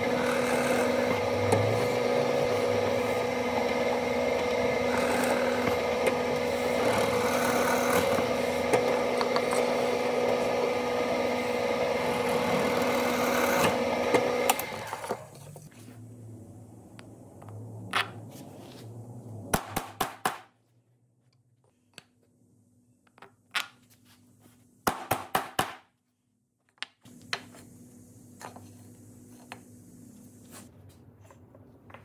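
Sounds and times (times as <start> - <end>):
power tool motor humming: 0.0 - 15.4.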